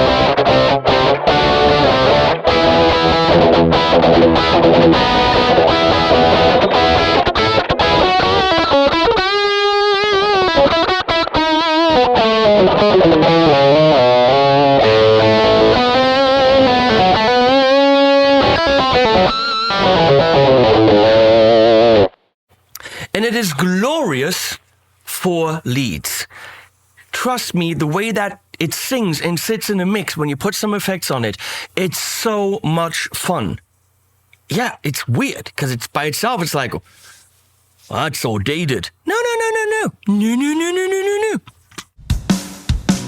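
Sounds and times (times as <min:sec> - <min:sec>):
distorted electric guitar: 0:00.0 - 0:22.3.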